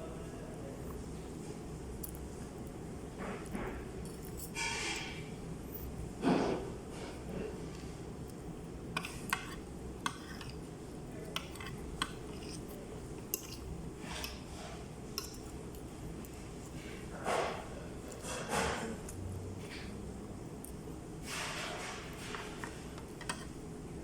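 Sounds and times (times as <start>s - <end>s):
low background hum: 0.0s - 24.0s
spoon clinking against bowl: 15.2s - 15.5s.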